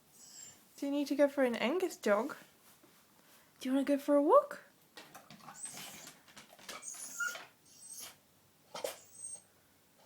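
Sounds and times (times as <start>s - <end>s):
dog whining and whimpering: 0.2s - 0.6s, 5.5s - 9.5s.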